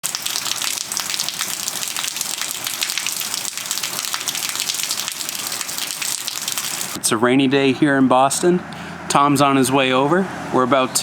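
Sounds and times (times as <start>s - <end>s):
steady rain falling: 0.0s - 7.0s.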